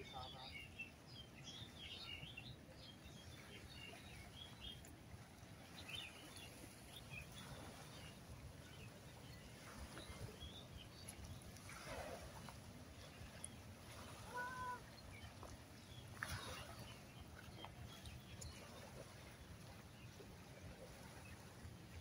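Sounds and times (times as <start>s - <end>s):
faint bird chirps: 13.1s - 15.5s.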